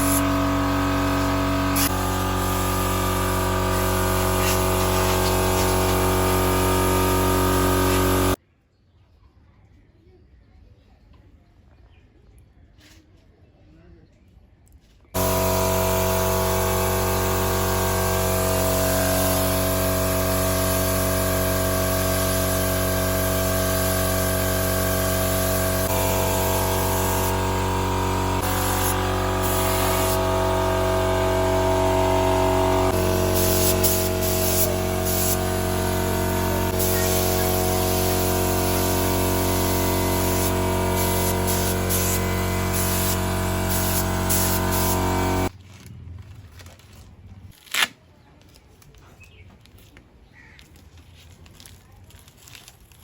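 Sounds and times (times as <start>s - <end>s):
machine hum: 0.0s - 8.4s, 15.2s - 45.5s
spray gun hissing: 0.0s - 8.4s, 15.2s - 45.5s.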